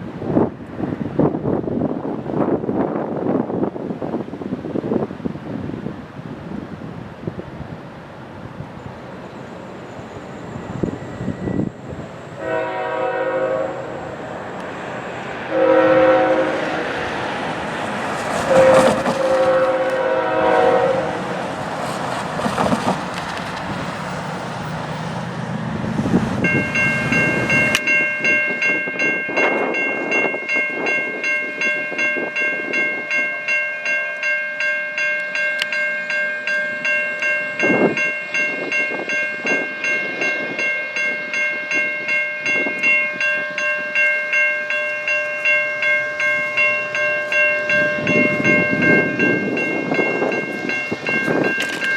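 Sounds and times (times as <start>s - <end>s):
train rumble: 0.0s - 33.3s, 36.4s - 51.9s
locomotive horn: 12.3s - 14.6s, 15.4s - 17.4s, 18.3s - 21.5s
clanks and knocks from rail cars: 17.7s - 20.0s, 21.4s - 25.1s, 50.2s - 51.9s
level-crossing bell ringing: 26.4s - 51.9s.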